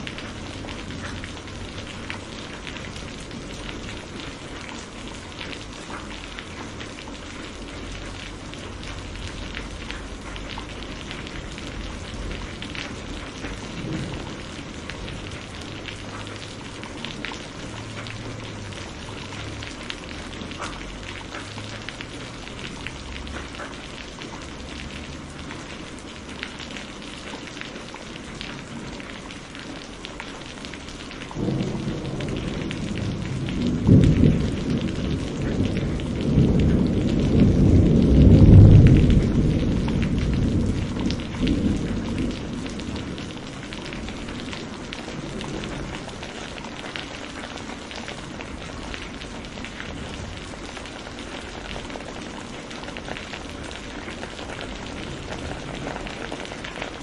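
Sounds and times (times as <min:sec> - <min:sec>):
heavy rain: 0:00.0 - 0:57.0
raindrops ticking on surface: 0:00.0 - 0:57.0
distant thunder rumble: 0:07.8 - 0:23.6, 0:31.0 - 0:57.0.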